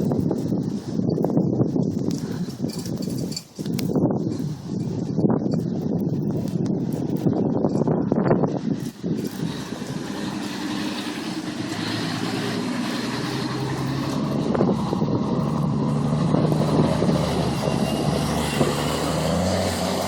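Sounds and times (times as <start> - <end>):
truck engine revving: 8.6 - 20.0.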